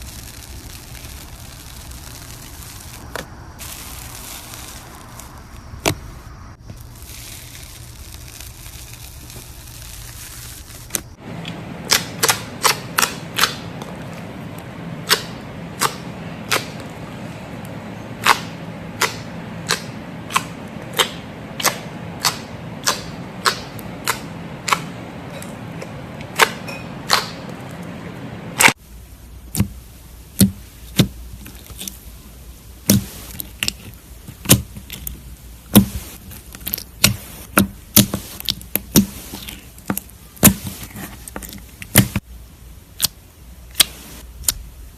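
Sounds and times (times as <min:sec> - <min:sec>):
slime air pockets popping: 0:00.0 - 0:11.1, 0:29.5 - 0:32.0, 0:32.8 - 0:42.3.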